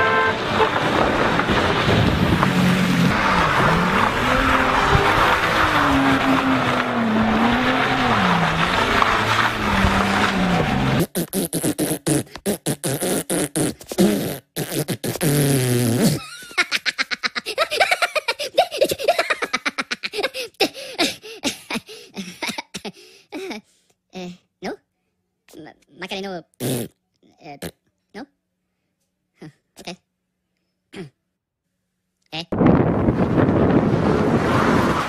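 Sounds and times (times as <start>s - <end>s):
car engine revving: 0.0s - 11.1s, 33.0s - 35.0s
tyre and gravel noise: 0.0s - 11.2s, 32.6s - 35.0s
cartoon sputtering raspberry: 10.9s - 19.3s, 26.5s - 28.3s
cartoon voices chattering and giggling: 16.2s - 20.7s.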